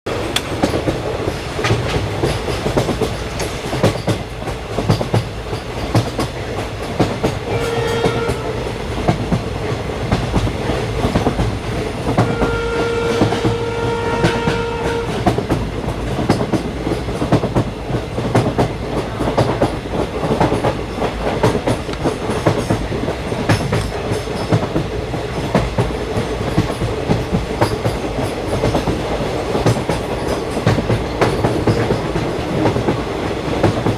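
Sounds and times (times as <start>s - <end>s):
wheels clacking over rail joints: 0.1s - 12.5s, 14.2s - 33.9s
train rumbling: 0.1s - 33.9s
train horn: 7.4s - 8.7s, 12.1s - 15.4s.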